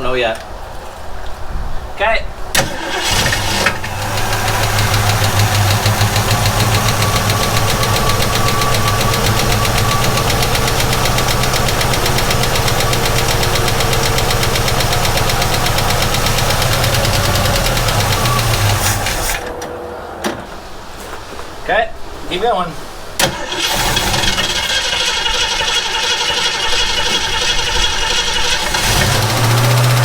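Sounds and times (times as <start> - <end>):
starter cranking car engine: 2.6 - 19.6, 23.2 - 30.0.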